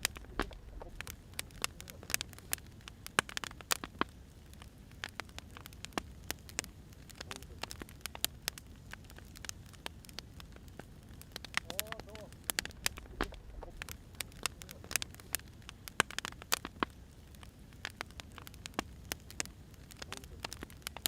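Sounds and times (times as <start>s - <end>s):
firewood crackling and popping: 0.0s - 21.0s
low rumble of fire: 0.0s - 21.0s.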